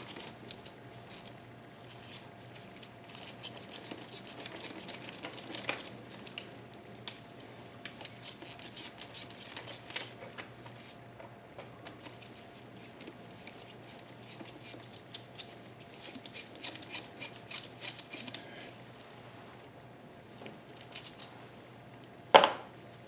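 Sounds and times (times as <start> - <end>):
tools and parts clicking: 13.4 - 18.4.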